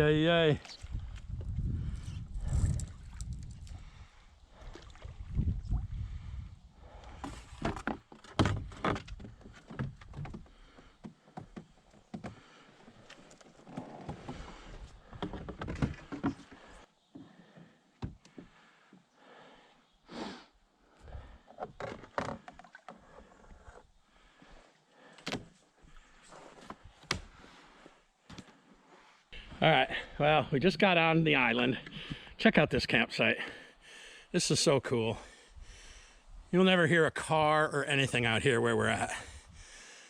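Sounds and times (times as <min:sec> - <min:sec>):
wind rumbling on microphone: 0:00.0 - 0:07.3.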